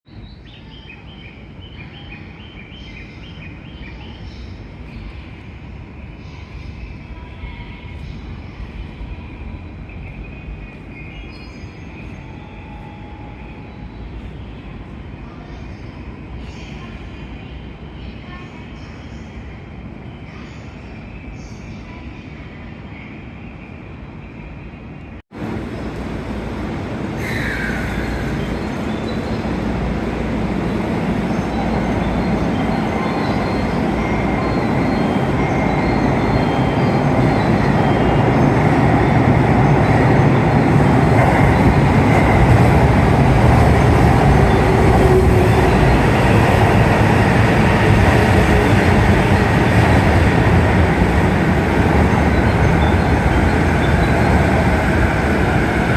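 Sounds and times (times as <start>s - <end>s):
electric train rumbling: 0.2s - 55.9s
train squeal: 27.2s - 29.4s, 31.3s - 39.2s.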